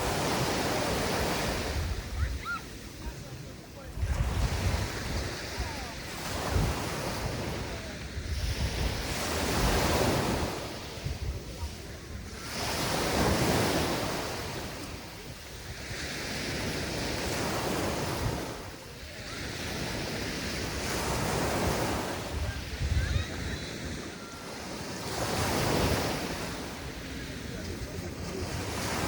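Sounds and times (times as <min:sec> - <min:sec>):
sea waves breaking on beach: 0:00.0 - 0:29.0
wind buffeting microphone: 0:00.0 - 0:29.0.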